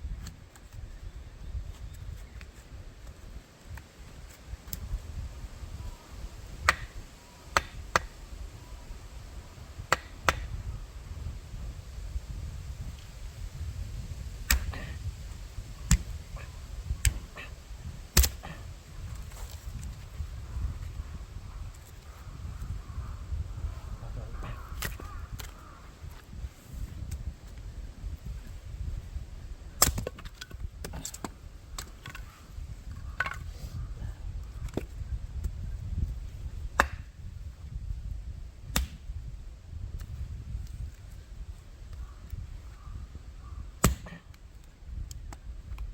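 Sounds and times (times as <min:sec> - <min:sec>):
firewood popping and cracking: 0:15.7 - 0:19.9, 0:29.8 - 0:32.4, 0:43.8 - 0:44.3
firewood cracking and knocking: 0:29.8 - 0:32.3.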